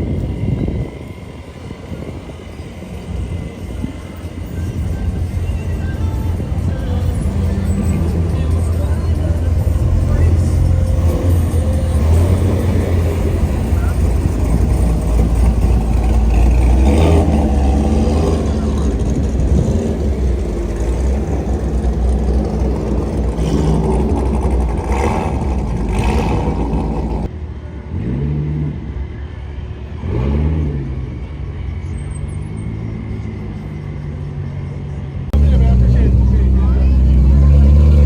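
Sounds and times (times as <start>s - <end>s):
car engines rumbling: 0.0s - 38.0s
engine revving: 3.8s - 29.1s, 30.0s - 31.4s, 35.3s - 38.0s.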